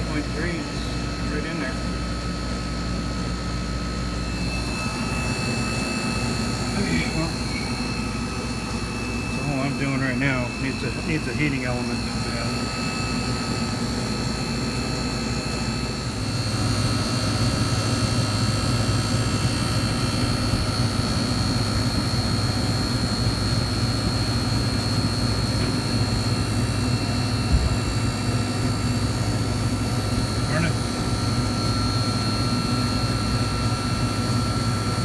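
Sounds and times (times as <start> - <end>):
refrigeration machine hum: 0.0 - 35.0
whining tones: 4.3 - 16.4.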